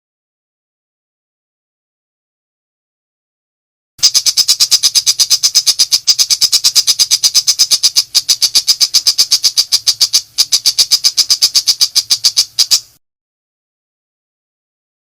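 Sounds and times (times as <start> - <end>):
bird song rapid notes: 4.0 - 13.0.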